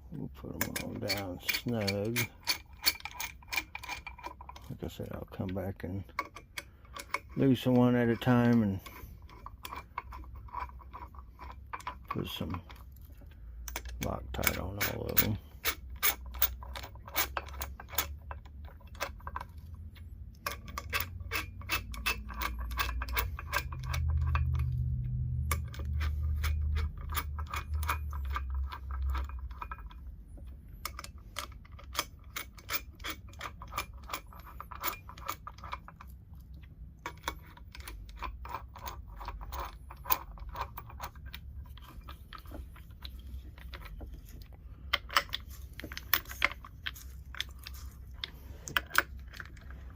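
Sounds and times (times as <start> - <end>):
hand ratchet clicking: 0.6 - 4.6, 20.4 - 29.8.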